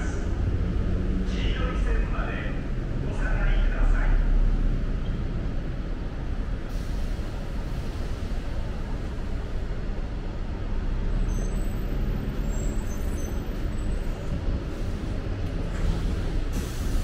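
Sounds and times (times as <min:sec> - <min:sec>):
electric train rumbling: 0:00.0 - 0:17.0
faint high squeals: 0:11.2 - 0:14.3.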